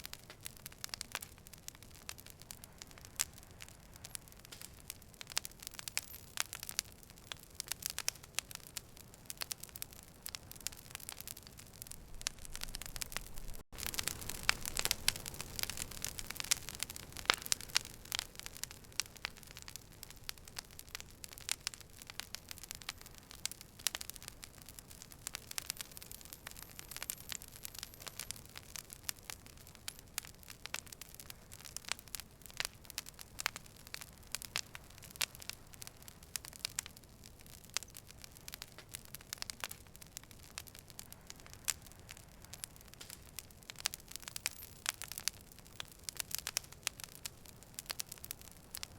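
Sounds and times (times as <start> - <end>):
campfire crackling and popping: 0.0 - 48.9
fire hissing: 0.1 - 37.2.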